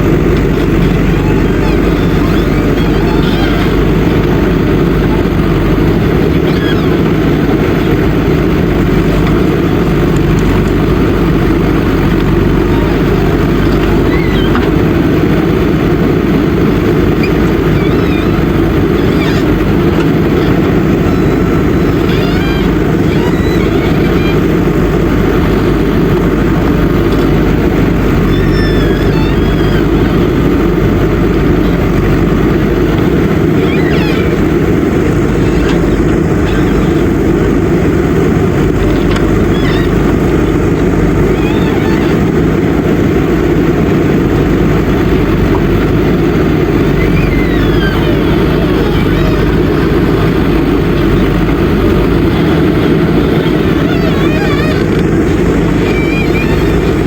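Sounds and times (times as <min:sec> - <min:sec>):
diesel engine droning: 0:00.0 - 0:57.0
faint high chirps: 0:28.0 - 0:30.4.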